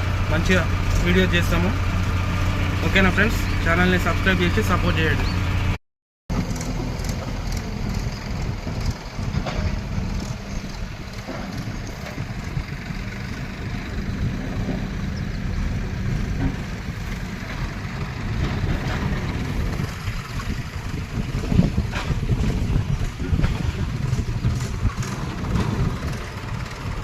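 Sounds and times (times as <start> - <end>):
diesel engine running: 0.0 - 27.0
wind buffeting microphone: 7.3 - 27.0.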